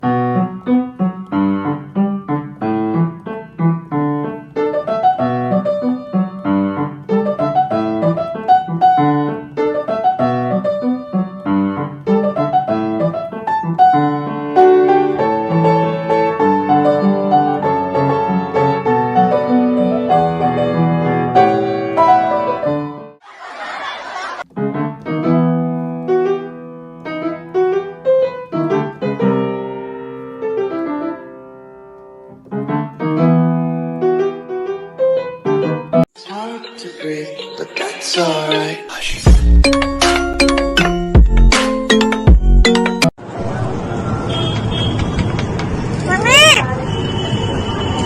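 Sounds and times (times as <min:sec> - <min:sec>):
solo piano music: 0:00.0 - 0:23.2, 0:24.4 - 0:38.1.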